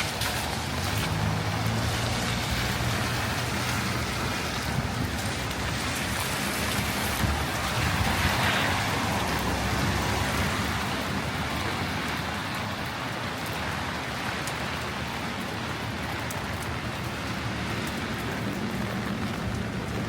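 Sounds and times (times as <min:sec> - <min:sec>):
heavy rain on hard surfaces: 0:00.0 - 0:20.0
raindrop ticks: 0:00.0 - 0:20.0.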